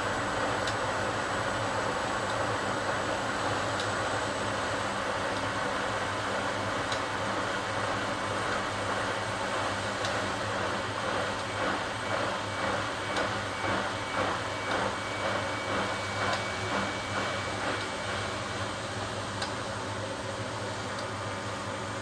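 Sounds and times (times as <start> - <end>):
washing machine hum: 0.0 - 22.0
washing machine drum swishing: 9.6 - 18.6.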